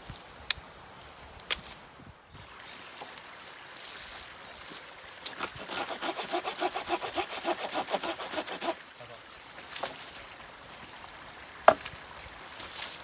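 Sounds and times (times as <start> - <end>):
hand saw cutting wood: 5.2 - 8.8.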